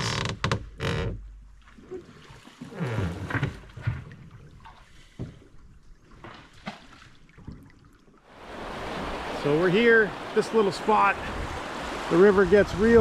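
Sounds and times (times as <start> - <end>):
water splashing and trickling: 0.8 - 13.0.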